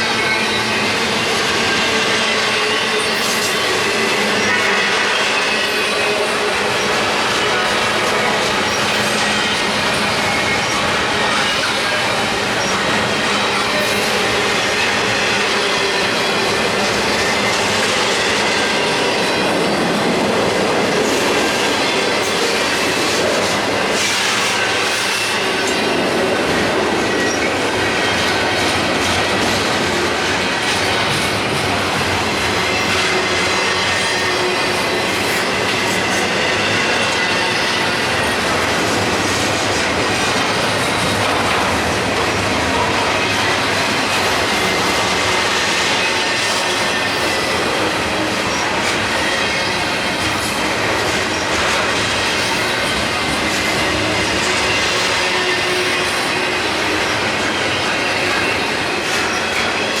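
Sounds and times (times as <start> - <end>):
train wheels on rails: 0.0 - 60.0
high wheel squeal: 32.4 - 60.0.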